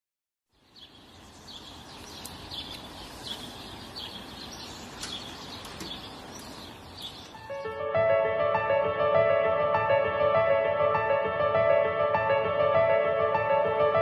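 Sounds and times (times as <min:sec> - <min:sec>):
small birds chirping: 0:00.5 - 0:07.8
outdoor background hiss: 0:00.5 - 0:08.3.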